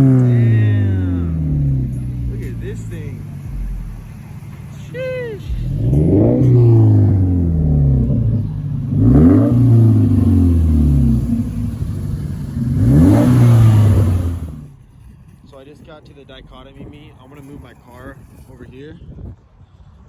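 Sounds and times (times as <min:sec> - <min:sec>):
car engine revving hard: 0:00.0 - 0:15.1.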